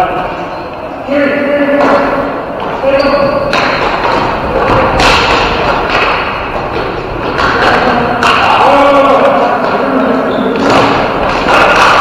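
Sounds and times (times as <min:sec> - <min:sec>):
ball and sticks knocking: 0:03.3 - 0:08.9.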